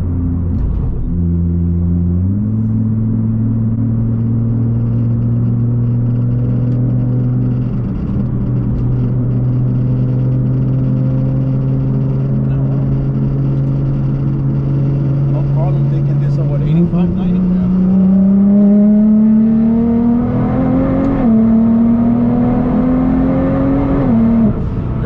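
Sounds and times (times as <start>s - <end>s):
car engine droning: 0.0s - 25.0s
road noise: 0.0s - 25.0s.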